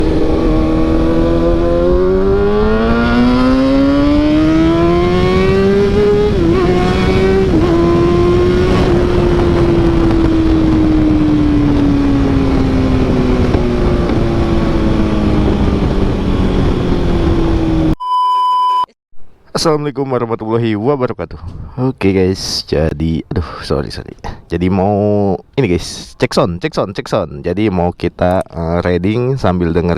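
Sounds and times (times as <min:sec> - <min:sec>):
motorcycle engine at high revs: 0:00.0 - 0:18.0.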